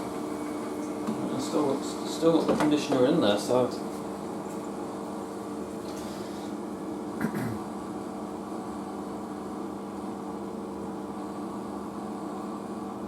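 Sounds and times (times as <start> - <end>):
washing machine spinning: 0.0 - 7.2.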